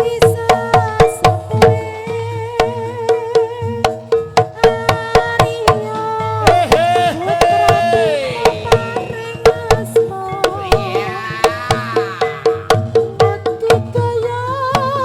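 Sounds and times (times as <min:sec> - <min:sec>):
hand drum strokes: 0:00.0 - 0:15.0
sliding held melody: 0:01.2 - 0:14.6.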